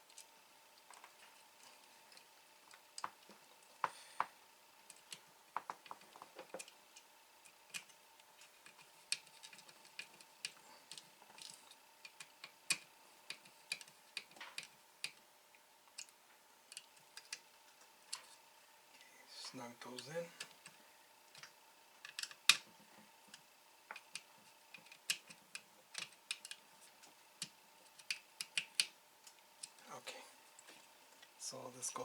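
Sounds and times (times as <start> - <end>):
faint steady hum: 0.0 - 32.0
small plastic parts clicking: 4.8 - 15.2, 15.9 - 18.4, 20.4 - 22.7, 23.3 - 29.8.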